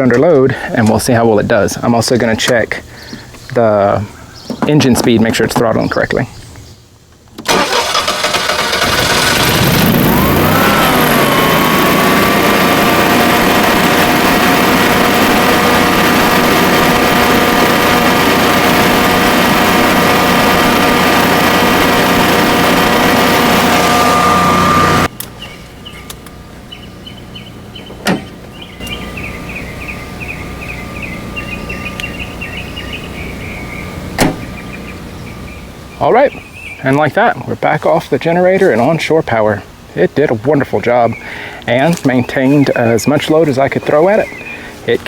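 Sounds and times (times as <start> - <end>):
generator engine running: 7.5 - 36.7
insects chirping: 25.2 - 36.8.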